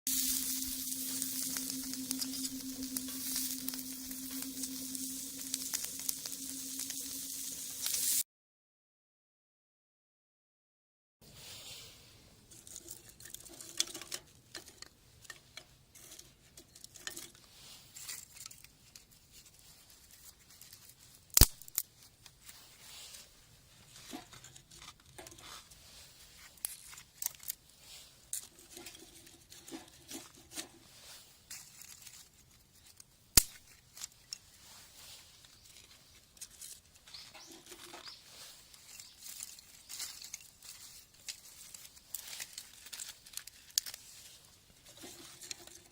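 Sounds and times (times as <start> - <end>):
material rustling and crinkling: 12.4 - 45.9.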